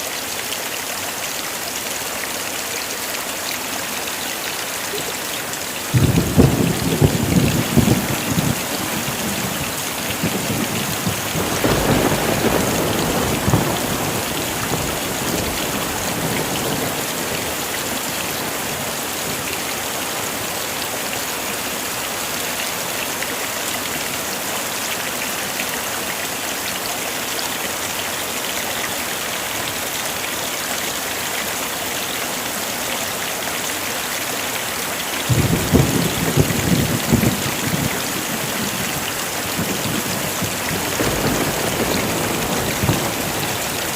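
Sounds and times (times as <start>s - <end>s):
heavy rain falling: 0.0s - 43.9s
thunder rumbling: 5.9s - 19.4s, 35.3s - 43.9s.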